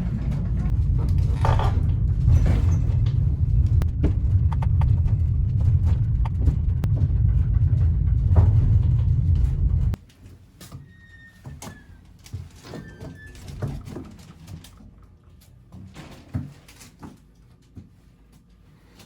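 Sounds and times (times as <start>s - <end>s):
vehicle rumble from inside: 0.0s - 10.0s
scattered clicks and knocks: 0.1s - 10.0s.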